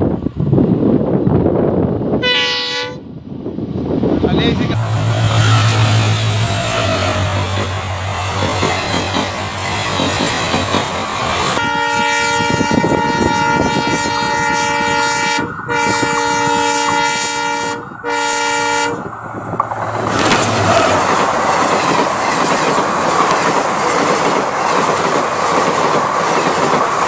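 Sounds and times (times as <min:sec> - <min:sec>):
locomotive horn blasts: 0:02.2 - 0:03.1, 0:11.6 - 0:19.1
train wheels rumbling on track: 0:03.2 - 0:27.0.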